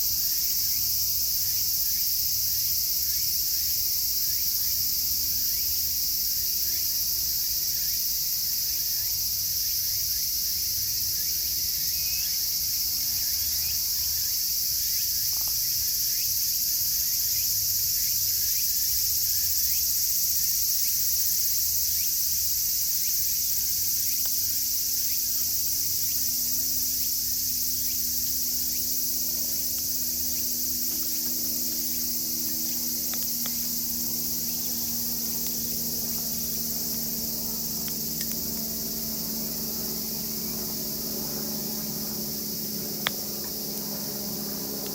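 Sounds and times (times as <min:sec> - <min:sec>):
cicadas droning: 0:00.0 - 0:44.9
campfire crackling: 0:29.7 - 0:40.3.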